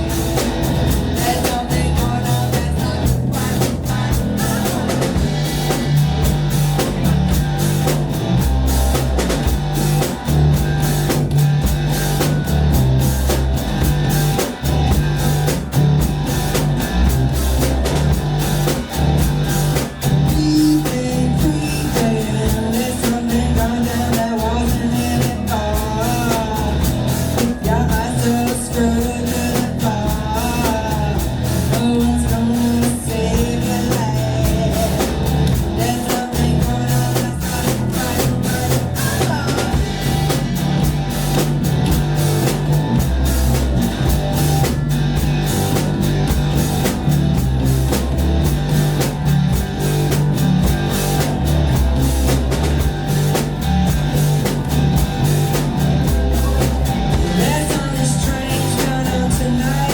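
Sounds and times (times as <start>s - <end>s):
drum kit beating: 0.0s - 59.9s
live rock band: 0.0s - 59.9s
person singing: 1.0s - 6.0s, 20.2s - 40.4s, 56.4s - 59.9s.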